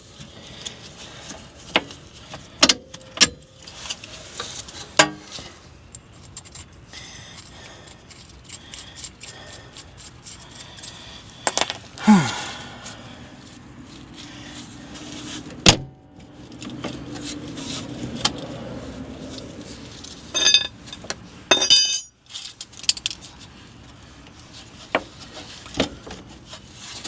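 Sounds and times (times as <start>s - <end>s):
metal tools clinking: 11.4s - 12.1s, 20.0s - 23.1s.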